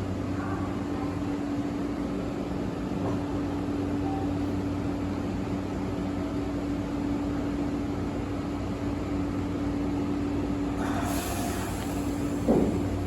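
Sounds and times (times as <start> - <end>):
train humming: 0.0 - 13.0
train running noise: 10.2 - 13.0.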